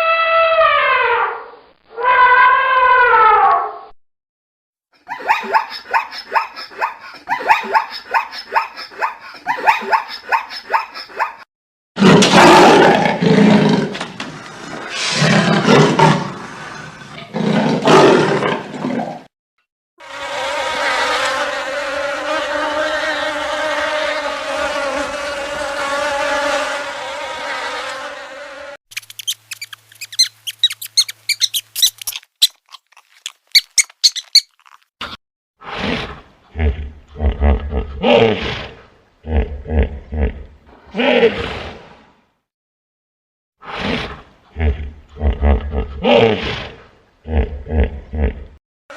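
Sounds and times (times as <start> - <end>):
rapid high chirps: 28.9 - 32.6
fast repeated animal calls: 28.9 - 34.8.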